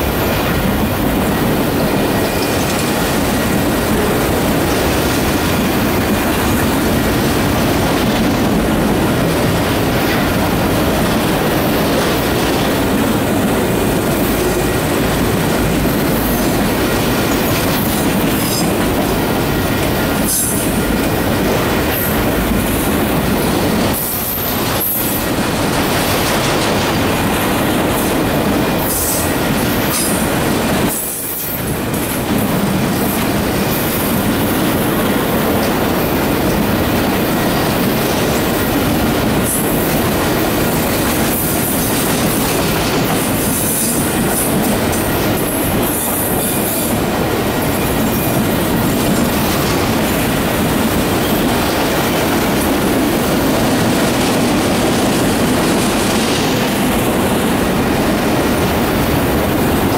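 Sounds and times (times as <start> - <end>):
steel wheels rumbling on rail: 0.0 - 59.9
clattering over rail joints: 0.6 - 58.1.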